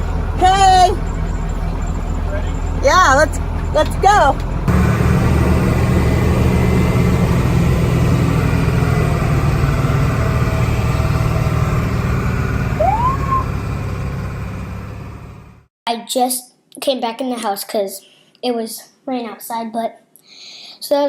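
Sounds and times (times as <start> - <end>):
diesel truck engine running: 0.0 - 15.7.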